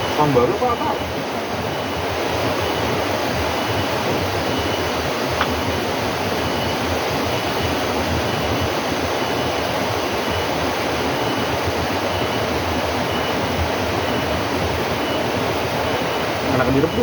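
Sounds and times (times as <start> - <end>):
faint broken high tone: 0.0 - 1.2.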